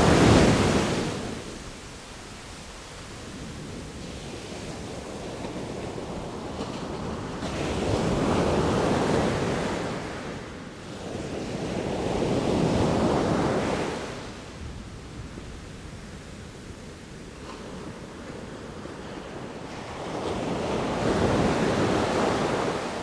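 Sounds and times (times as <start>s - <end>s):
sea waves breaking: 0.0s - 10.2s.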